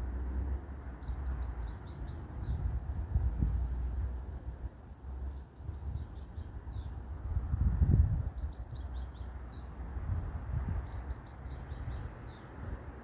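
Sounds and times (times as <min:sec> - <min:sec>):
songbird chirping: 0:00.0 - 0:02.7, 0:08.1 - 0:13.0.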